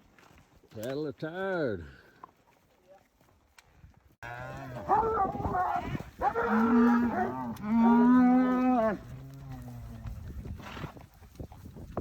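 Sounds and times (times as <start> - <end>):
cattle mooing: 4.2 - 10.2.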